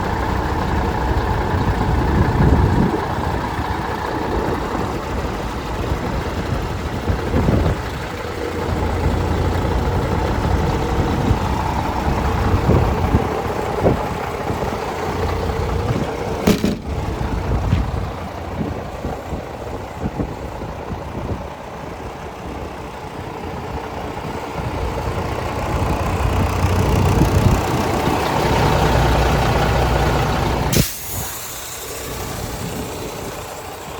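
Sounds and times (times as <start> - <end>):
diesel truck engine idling: 0.0 - 33.9
sharp click: 16.5 - 17.0.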